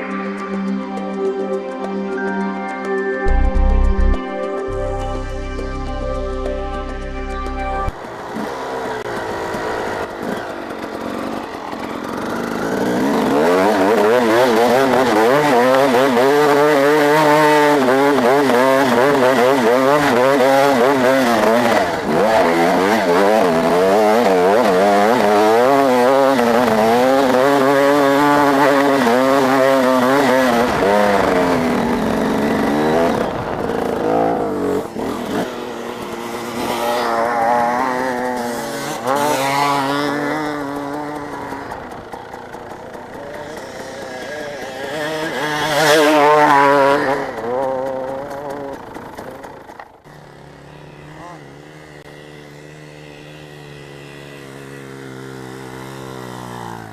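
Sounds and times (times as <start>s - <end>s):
dirt-bike engines revving: 5.9s - 56.9s.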